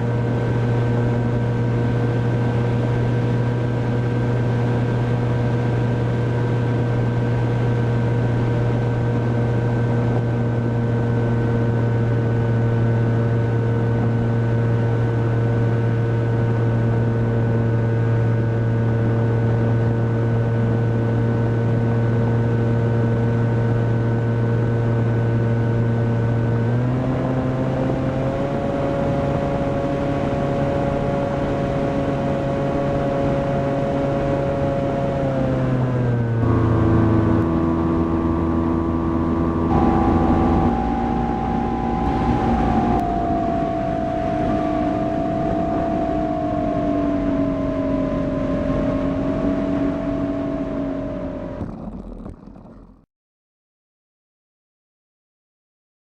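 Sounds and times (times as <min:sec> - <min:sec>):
electric motor and propeller: 0:39.3 - 0:53.0.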